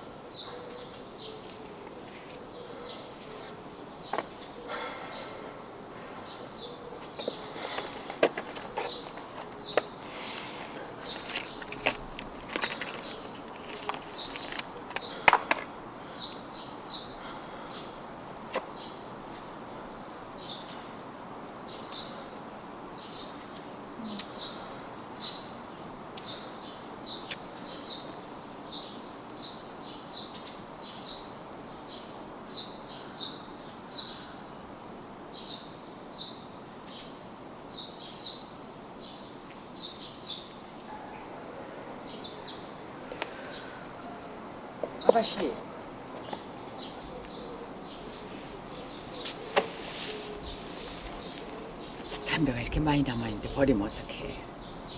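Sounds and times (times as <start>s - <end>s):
faint background hiss: 0.0s - 54.9s
small bird chirping: 6.3s - 15.2s, 24.0s - 25.5s, 44.8s - 54.9s.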